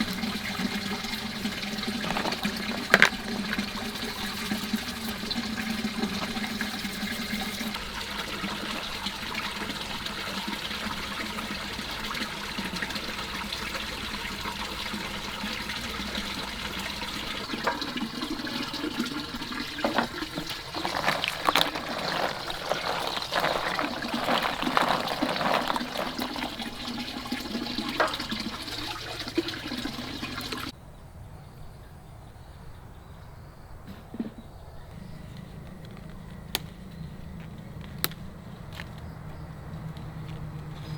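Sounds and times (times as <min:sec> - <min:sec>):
water running: 0:00.0 - 0:30.7
water splashing: 0:00.0 - 0:30.7.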